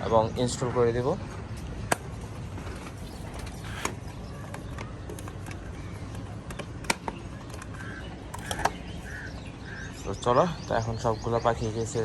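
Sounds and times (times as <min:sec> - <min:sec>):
bird chirping: 0:01.3 - 0:12.0.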